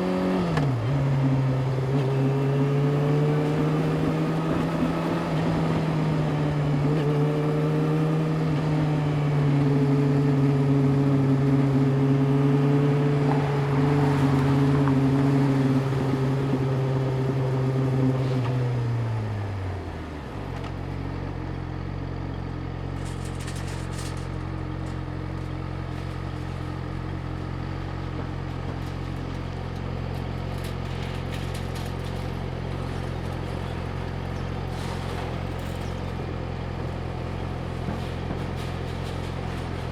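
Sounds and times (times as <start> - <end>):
motorcycle engine running: 19.6 - 34.7.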